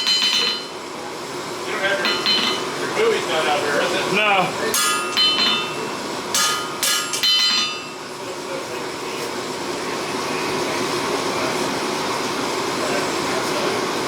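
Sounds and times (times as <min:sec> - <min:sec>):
hammer blows on metal: 0:04.7 - 0:08.0.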